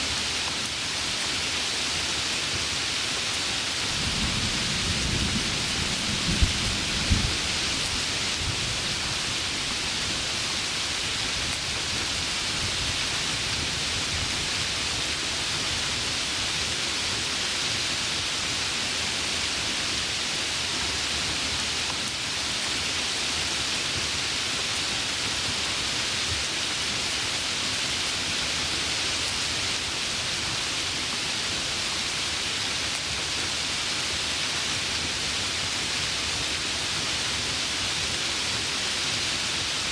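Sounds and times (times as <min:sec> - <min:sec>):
heavy rain falling: 0:00.0 - 0:39.9
thunder rumbling and cracking: 0:04.0 - 0:07.8.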